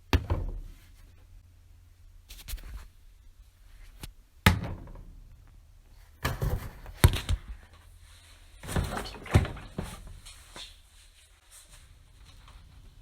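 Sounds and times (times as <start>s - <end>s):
objects knocking when set down: 6.2s - 7.4s.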